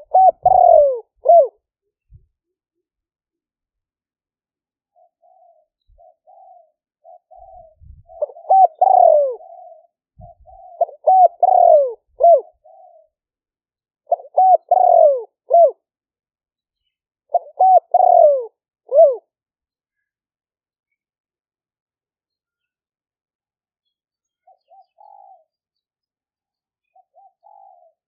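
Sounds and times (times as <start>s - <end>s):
dove cooing: 0.0s - 1.6s, 4.9s - 13.2s, 14.1s - 15.8s, 17.3s - 19.3s, 24.4s - 25.6s, 26.8s - 28.0s.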